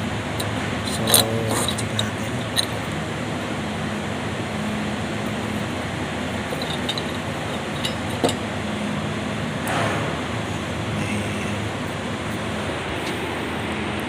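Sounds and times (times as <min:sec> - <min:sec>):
steady background hum: 0:00.0 - 0:14.0
metal parts clinking: 0:00.4 - 0:03.0, 0:05.2 - 0:08.5.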